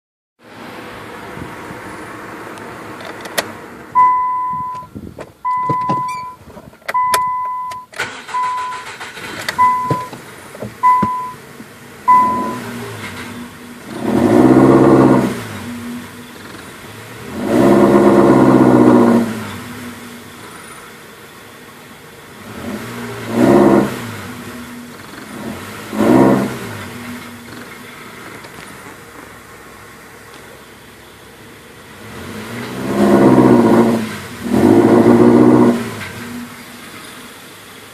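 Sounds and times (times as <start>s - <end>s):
car engine revving and idling: 0.4s - 37.9s
car warning chime beeps: 4.0s - 10.2s, 10.8s - 11.4s, 12.1s - 12.7s.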